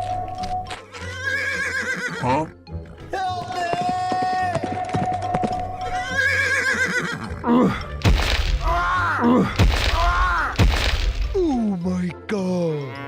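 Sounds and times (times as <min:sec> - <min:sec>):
horse whinnying: 0:00.9 - 0:02.6, 0:04.4 - 0:07.8
sharp hits: 0:08.0 - 0:08.8, 0:09.6 - 0:11.4.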